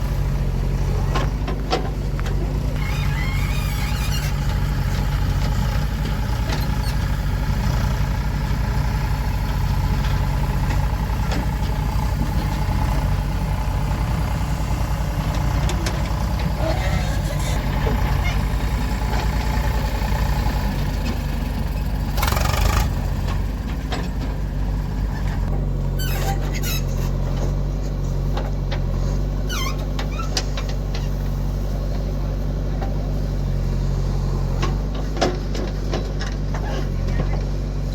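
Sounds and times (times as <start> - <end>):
diesel engine running: 0.0 - 37.9
brief squeaks: 2.8 - 4.5, 26.0 - 27.2, 29.4 - 30.6.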